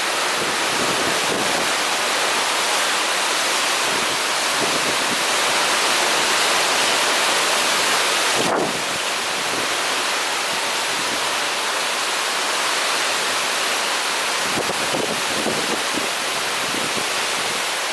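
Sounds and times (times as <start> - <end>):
heavy rain: 0.0 - 17.9
strong wind: 0.2 - 3.0, 3.6 - 11.4, 14.4 - 17.8.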